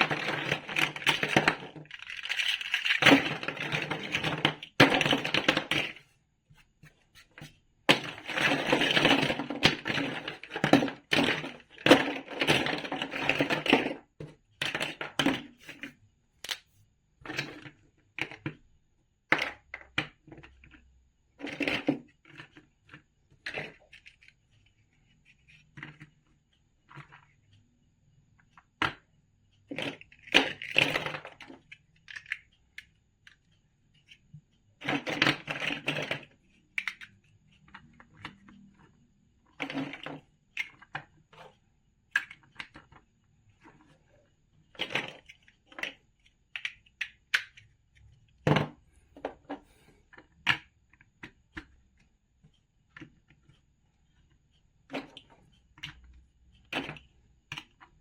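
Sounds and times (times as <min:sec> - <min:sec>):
plastic bricks clicking: 0:00.0 - 0:06.0, 0:16.4 - 0:18.6, 0:29.7 - 0:32.9, 0:34.8 - 0:37.1, 0:42.1 - 0:43.0, 0:44.7 - 0:47.7
plastic bricks rattling: 0:00.0 - 0:06.0, 0:07.9 - 0:14.0.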